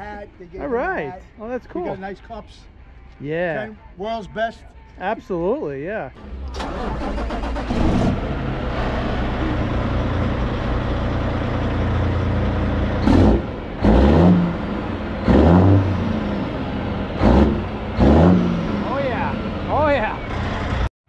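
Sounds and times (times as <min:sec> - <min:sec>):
truck engine revving: 0:06.2 - 0:20.9.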